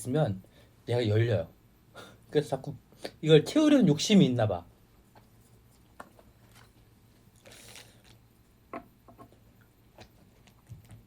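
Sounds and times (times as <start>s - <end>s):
soft chewing: 9.6s - 11.0s.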